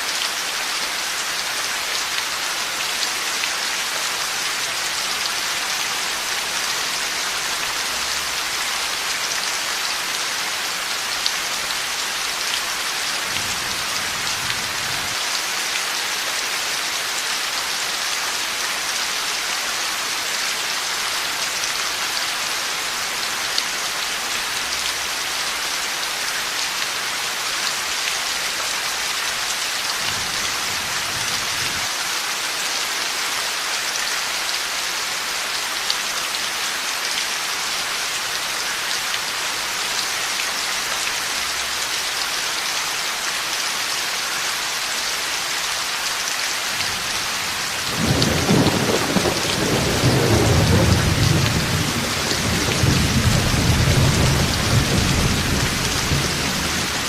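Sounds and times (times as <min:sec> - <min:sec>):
heavy rain hissing: 0:00.0 - 0:57.0
low rumble of thunder: 0:47.7 - 0:57.0.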